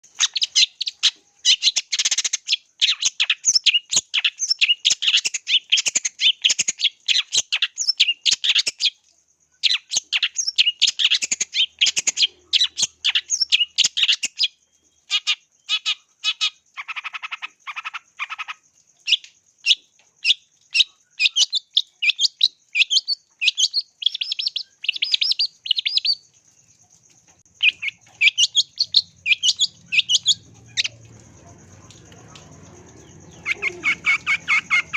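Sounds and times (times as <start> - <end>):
shrike singing: 27.6 - 34.9.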